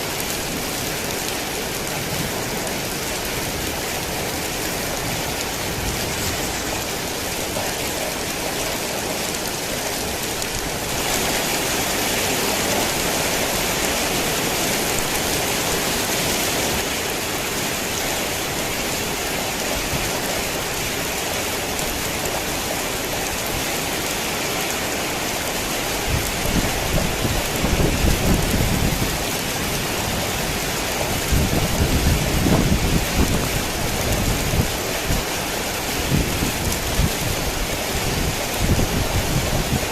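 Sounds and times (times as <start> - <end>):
heavy rain: 0.0 - 39.9
low rumbling thunder: 26.0 - 35.2.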